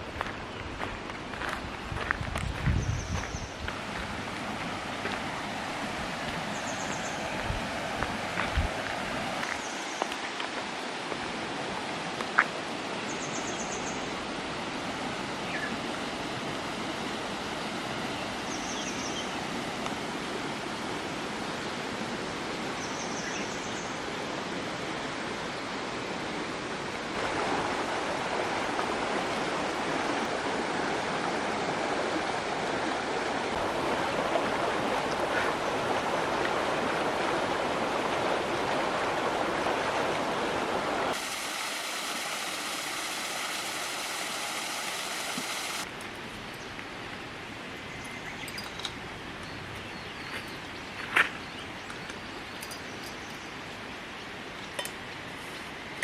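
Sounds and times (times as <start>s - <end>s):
river rushing: 3.1s - 47.9s.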